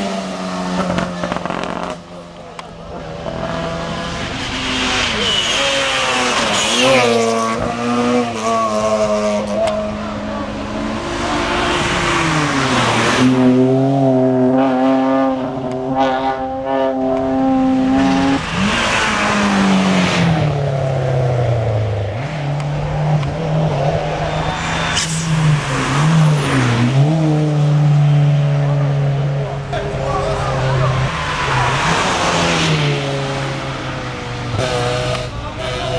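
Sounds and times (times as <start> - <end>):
racing car engine revving: 0.0 - 35.9.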